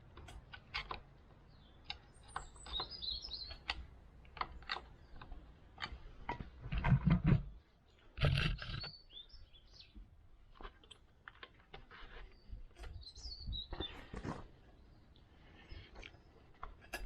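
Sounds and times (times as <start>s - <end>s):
hand tools and metal parts clicking: 0.0s - 6.6s, 15.7s - 17.0s.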